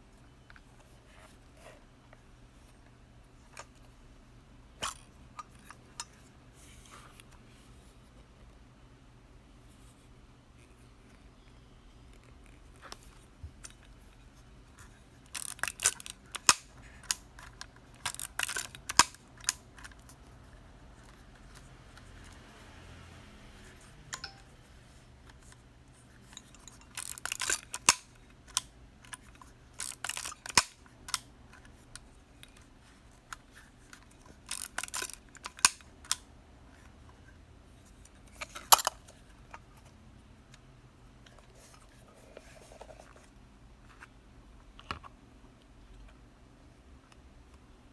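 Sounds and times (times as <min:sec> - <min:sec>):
camera clicking and ratcheting: 0:15.3 - 0:20.0, 0:26.6 - 0:31.3, 0:34.4 - 0:36.2.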